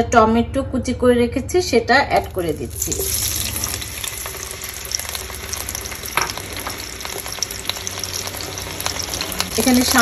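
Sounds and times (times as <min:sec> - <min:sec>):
oil popping: 0:02.2 - 0:10.0
tomato sizzling in a frying pan: 0:02.2 - 0:10.0.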